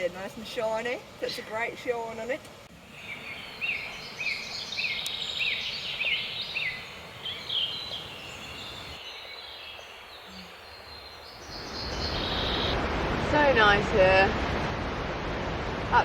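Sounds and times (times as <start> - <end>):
river rushing: 0.4 - 16.0
bird chirping: 2.1 - 12.8.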